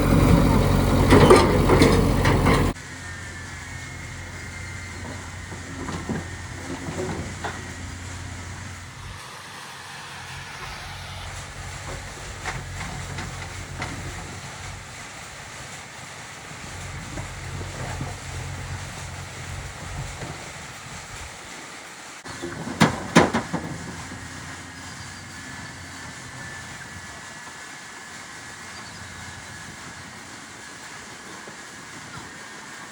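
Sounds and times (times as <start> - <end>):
diesel engine idling: 0.0 - 15.7, 16.5 - 20.3.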